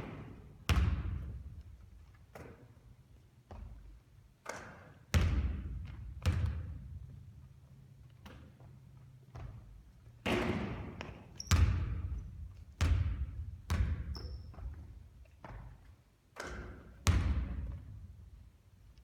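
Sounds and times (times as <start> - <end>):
basketball bouncing on hard floor: 0.0 - 1.7, 4.5 - 6.9, 9.3 - 18.0.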